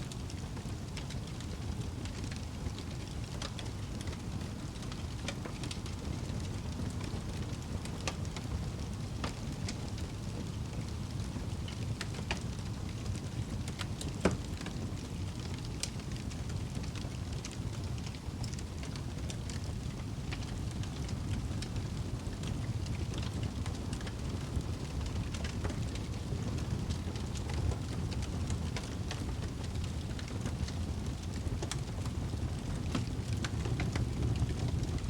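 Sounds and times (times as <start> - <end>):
fire crackling and popping: 0.0 - 35.0
wood fire burning: 0.0 - 35.0.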